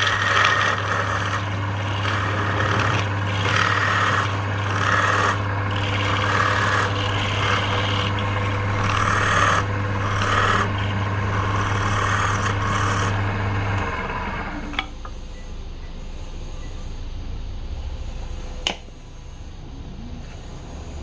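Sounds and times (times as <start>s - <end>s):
tool rasping against spinning wood: 0.0s - 14.7s
wood lathe motor hum: 0.0s - 15.1s.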